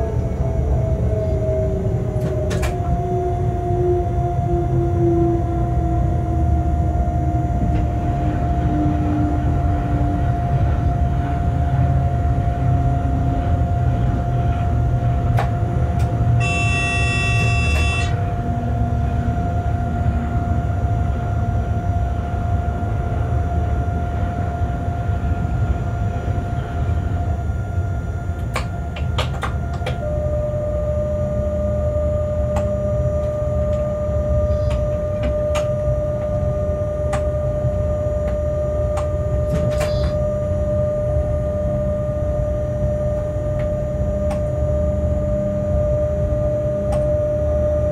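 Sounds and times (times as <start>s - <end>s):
train wheels rumbling on rail: 0.0s - 30.2s, 32.5s - 40.2s
passing freight train: 0.0s - 47.9s
steady whine: 0.0s - 47.9s
horn-like tone: 16.3s - 18.3s, 30.0s - 44.4s.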